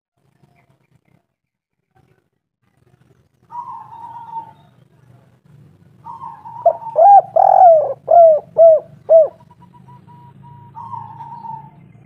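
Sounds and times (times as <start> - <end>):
dove cooing: 3.5 - 4.7, 6.0 - 11.8.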